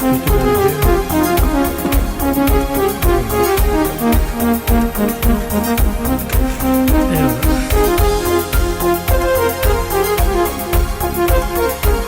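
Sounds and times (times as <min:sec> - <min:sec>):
instrumental electronic music: 0:00.0 - 0:12.0.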